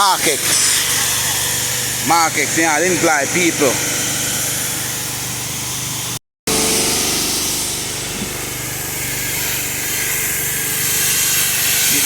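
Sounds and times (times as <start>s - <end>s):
small engine running: 0.1s - 12.0s
water spray hissing: 5.9s - 12.0s.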